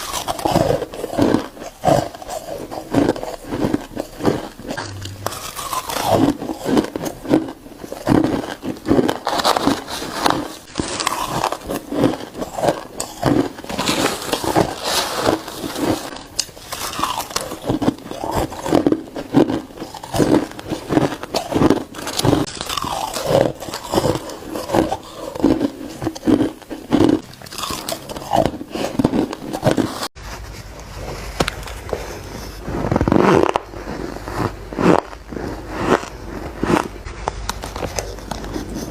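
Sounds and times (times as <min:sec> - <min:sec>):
ice crunching being chewed: 0:00.0 - 0:30.1, 0:31.6 - 0:38.9
low hum: 0:03.2 - 0:07.7.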